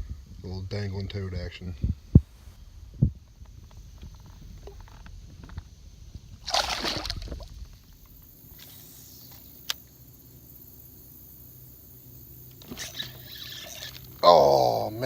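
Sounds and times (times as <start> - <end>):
water splashing beside kayak: 6.3 - 8.9.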